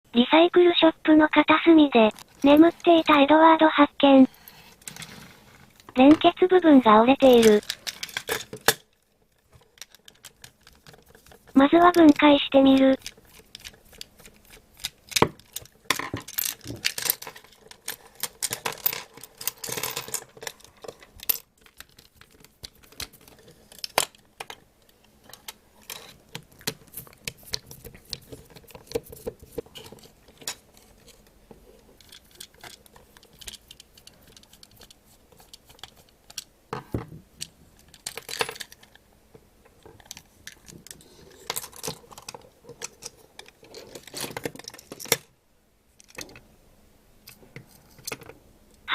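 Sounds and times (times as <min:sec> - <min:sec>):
small plastic clicks and rattles: 0:07.3 - 0:31.3, 0:32.0 - 0:36.5.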